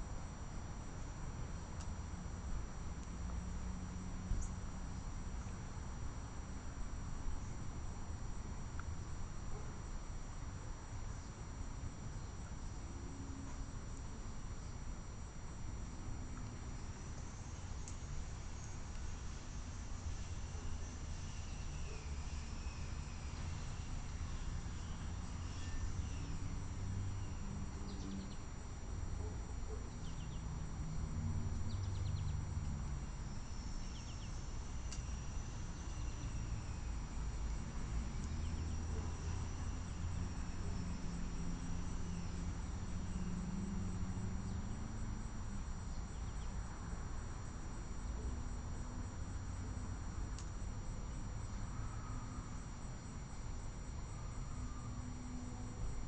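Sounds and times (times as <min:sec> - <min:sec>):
high-pitched insect trill: 0:14.6 - 0:29.2, 0:29.8 - 0:56.0.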